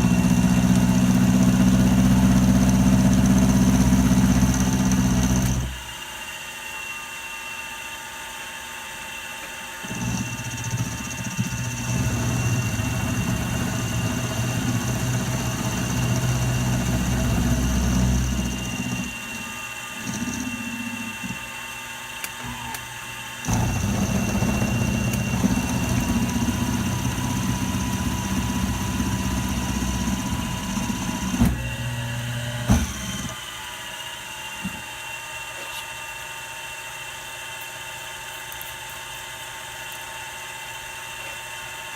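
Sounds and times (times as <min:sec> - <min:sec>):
cutter working steel: 0:00.0 - 0:06.0, 0:09.8 - 0:34.8
milling machine whining: 0:00.0 - 0:07.3, 0:08.5 - 0:35.5.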